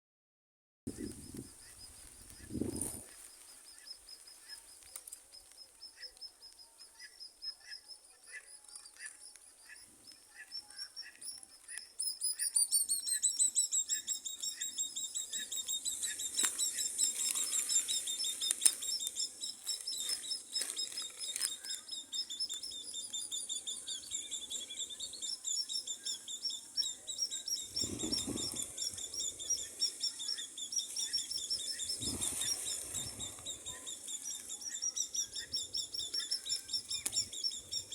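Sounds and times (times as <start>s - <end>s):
baby bird peeping: 8.9s - 37.9s
high-pitched chirps: 10.1s - 37.9s.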